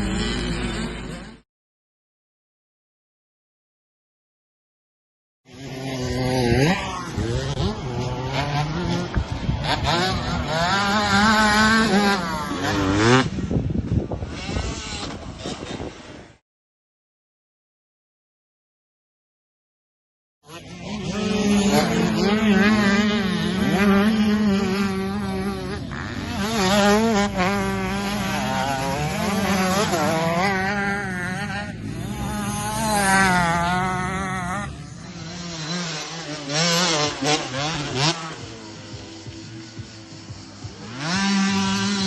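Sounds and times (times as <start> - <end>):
motocross bike engine revving: 0.0 - 1.4, 5.5 - 16.4, 20.4 - 42.0.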